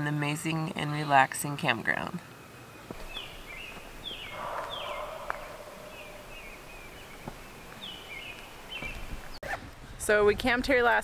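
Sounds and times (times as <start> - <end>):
songbirds chirping: 0.0 - 9.4.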